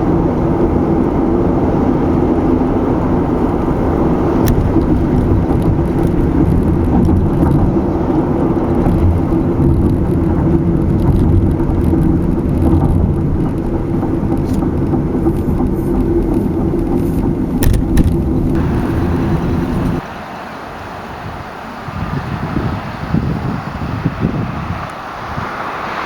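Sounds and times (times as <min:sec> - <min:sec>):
car tyres and engine rumbling: 0:00.0 - 0:26.0
sharp clicks: 0:10.9 - 0:18.6.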